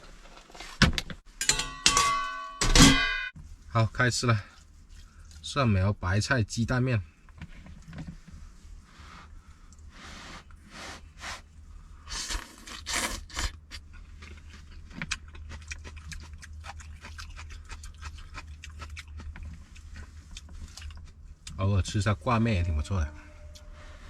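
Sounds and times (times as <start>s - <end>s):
chewing with light clicks: 4.5s - 5.5s, 13.7s - 21.6s
steady low hum: 13.5s - 24.0s.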